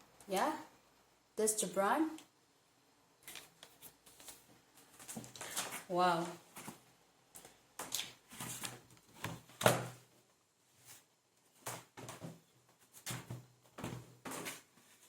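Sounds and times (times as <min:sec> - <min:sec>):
laptop packaging knocks and rustles: 0:11.6 - 0:14.7.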